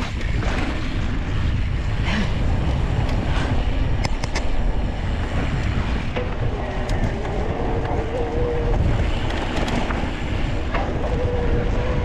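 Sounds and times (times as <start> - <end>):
bike tyres rolling over dirt: 0.0 - 12.0
wind rushing over microphone: 0.0 - 12.0
sharp clicks and rattles: 3.9 - 4.7.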